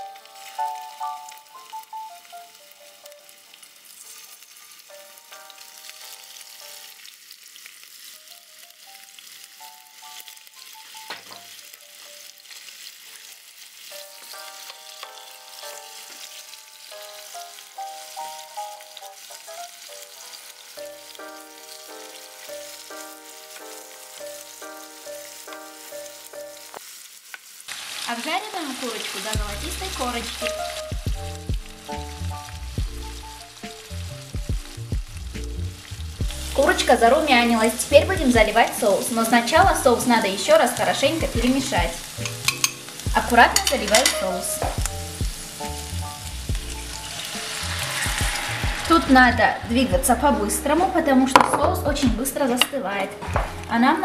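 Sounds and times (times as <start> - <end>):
soft background music: 0.0 - 26.8, 28.2 - 54.0
spatula turning food in pan: 0.0 - 53.8
chicken sizzling in a frying pan: 0.0 - 54.0
bass line: 29.4 - 38.6, 39.6 - 40.1, 43.1 - 43.6, 44.7 - 52.2.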